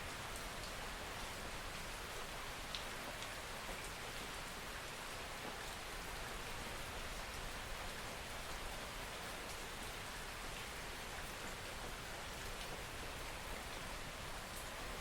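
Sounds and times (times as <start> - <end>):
steady rain hiss: 0.0 - 15.0
raindrop ticks: 2.7 - 3.3.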